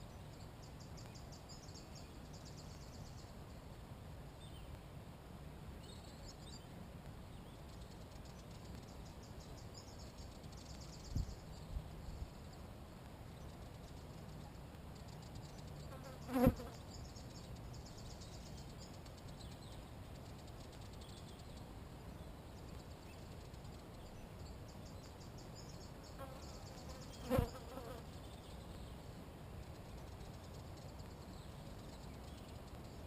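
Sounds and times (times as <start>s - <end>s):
faint birdsong: 0.0s - 33.0s
flying insect buzzing past: 15.9s - 16.8s, 26.1s - 28.1s.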